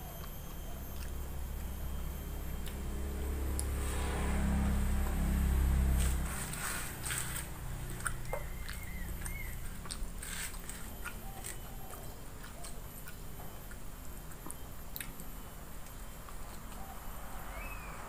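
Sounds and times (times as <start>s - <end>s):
person chewing: 6.0s - 17.1s
mouth clicks and smacks: 7.9s - 16.8s.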